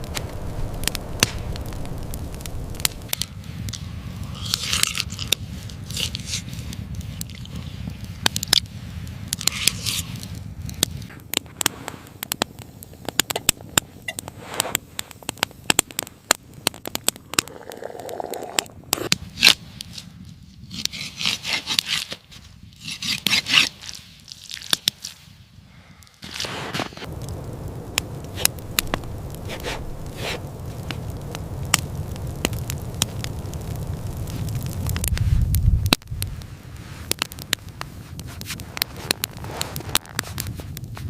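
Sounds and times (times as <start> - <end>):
low rumble: 0.0 - 5.3, 27.1 - 36.8
sharp clicks and crackles: 0.0 - 20.0, 27.0 - 41.0.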